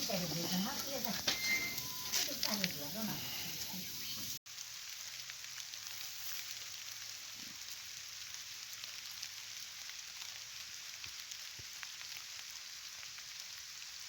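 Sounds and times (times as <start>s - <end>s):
faint steady hiss: 0.0s - 14.0s
small irregular ticks: 2.1s - 2.8s, 4.5s - 14.0s.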